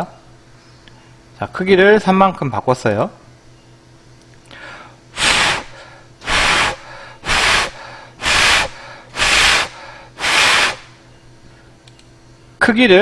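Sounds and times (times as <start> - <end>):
breath puffs on microphone: 4.6 - 10.9.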